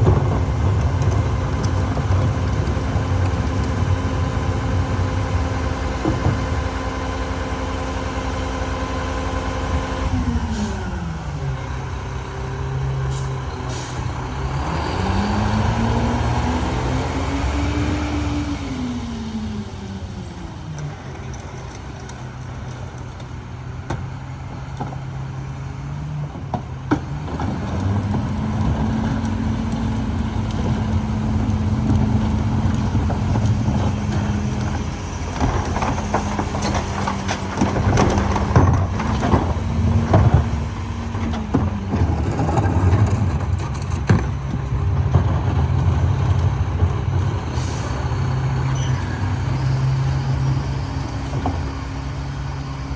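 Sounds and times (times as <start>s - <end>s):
cart clanking and rattling: 0.0s - 7.6s, 18.9s - 52.9s
garbage truck diesel engine revving: 0.0s - 52.9s.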